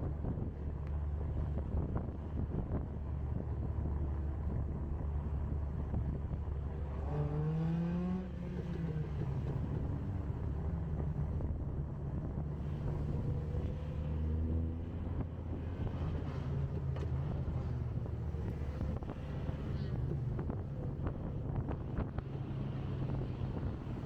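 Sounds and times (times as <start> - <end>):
road noise: 0.0 - 24.0
car engine: 12.6 - 24.0.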